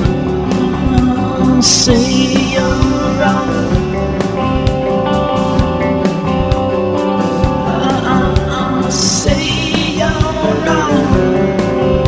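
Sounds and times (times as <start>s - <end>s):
person singing: 0.0s - 4.6s, 7.3s - 12.0s
electric guitar: 0.0s - 12.0s
steady drum beat: 0.0s - 12.0s.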